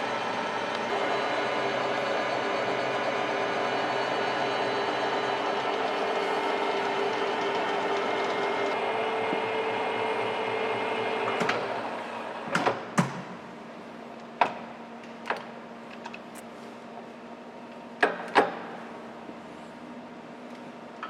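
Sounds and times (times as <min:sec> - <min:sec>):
lathe running: 0:00.0 - 0:12.0.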